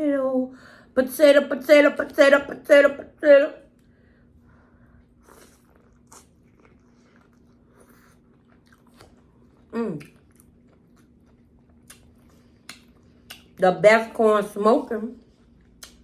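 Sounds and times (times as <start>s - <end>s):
chewing corn on the cob: 4.9s - 13.6s, 15.2s - 16.0s.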